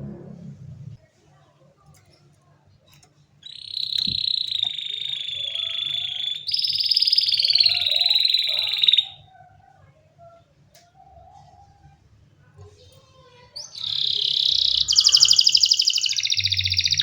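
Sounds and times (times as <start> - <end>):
canary singing rapid trills: 3.4 - 9.3, 13.4 - 17.0.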